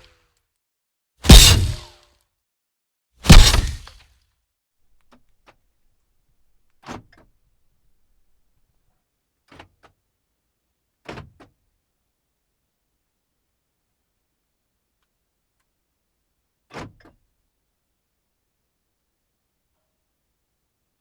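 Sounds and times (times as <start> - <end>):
knocks: 1.3 - 1.9, 3.3 - 3.9.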